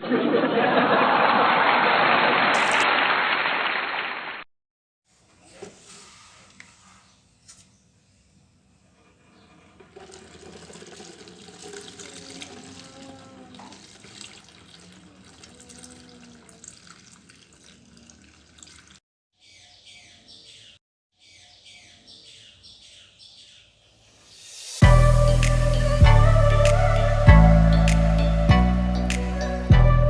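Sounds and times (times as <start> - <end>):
tap water running into sink: 9.6 - 19.0.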